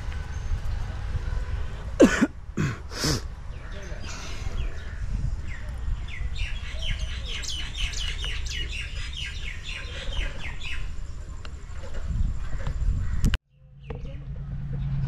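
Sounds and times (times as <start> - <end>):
bird chirping: 3.6 - 12.7
low rumble: 12.1 - 15.0.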